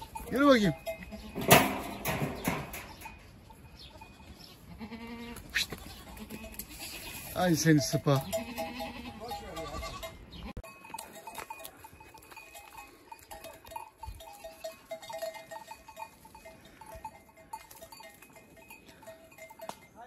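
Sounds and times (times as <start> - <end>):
knocks from goats moving: 0.8 - 3.2.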